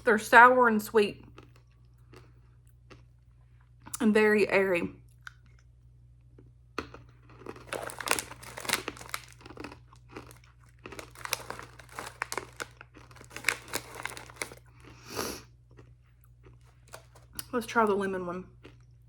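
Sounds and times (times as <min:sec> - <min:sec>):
plastic bag crinkling: 0:07.3 - 0:15.0, 0:16.6 - 0:17.5.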